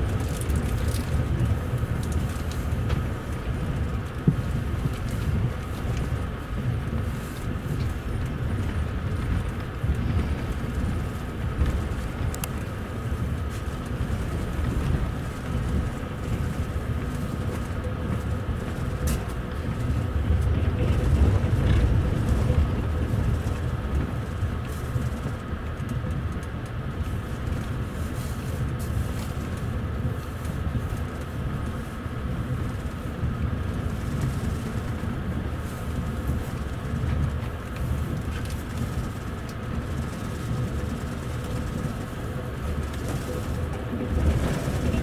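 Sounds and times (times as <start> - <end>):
train coach rumbling: 0.0 - 45.0.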